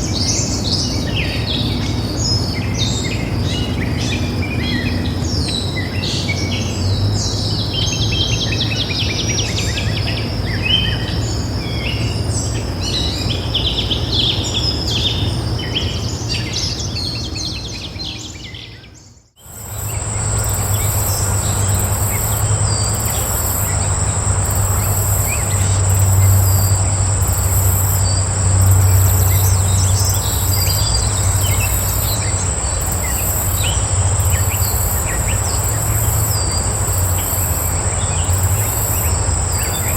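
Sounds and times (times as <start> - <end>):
insects trilling: 19.4 - 39.9
pulsing buzz: 19.4 - 39.9
steady low rumble: 19.4 - 39.9
birds chirping and singing: 19.5 - 39.9.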